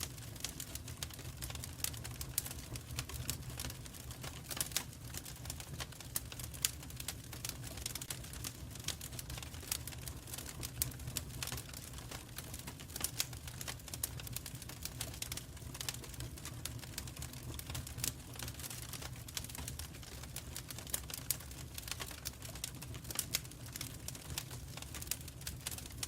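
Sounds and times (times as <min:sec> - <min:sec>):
fireplace fire crackling: 0:00.0 - 0:26.0.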